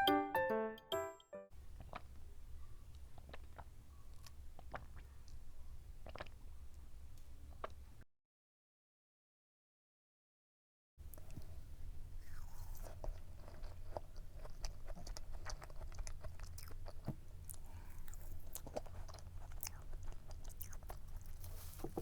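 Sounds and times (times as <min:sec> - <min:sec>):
person chewing cake: 0:01.7 - 0:08.0, 0:11.0 - 0:22.0.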